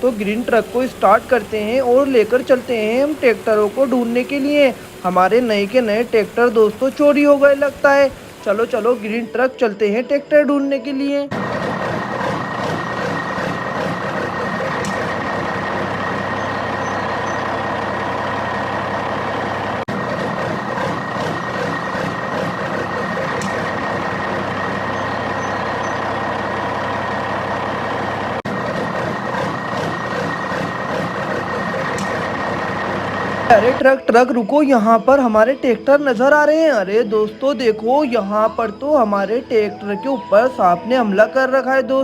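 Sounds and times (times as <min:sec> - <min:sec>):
truck engine running: 0:00.0 - 0:10.0, 0:11.3 - 0:41.6
constant high whine: 0:11.3 - 0:34.0.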